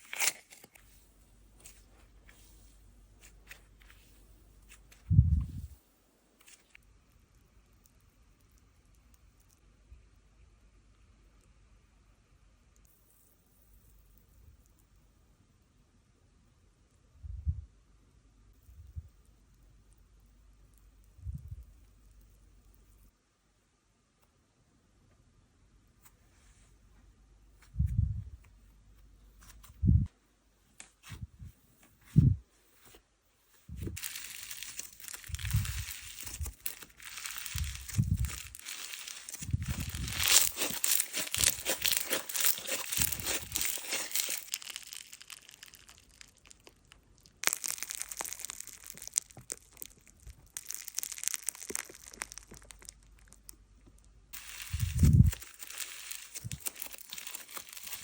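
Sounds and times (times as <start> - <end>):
slime crackling: 33.8 - 53.6, 54.4 - 58.0
slime popping: 34.0 - 58.0.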